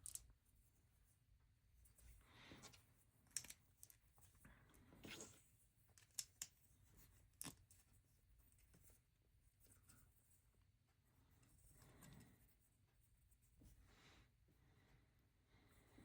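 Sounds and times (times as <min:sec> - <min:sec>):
plastic bricks clicking together: 0:00.0 - 0:00.2, 0:03.3 - 0:04.0, 0:06.0 - 0:06.5.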